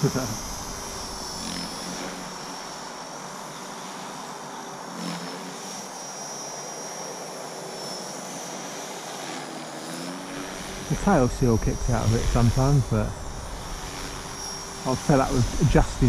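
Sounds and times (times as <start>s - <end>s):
rotor whooshing: 0.0s - 2.9s, 10.3s - 16.0s
rc helicopter motor whine: 0.0s - 16.0s.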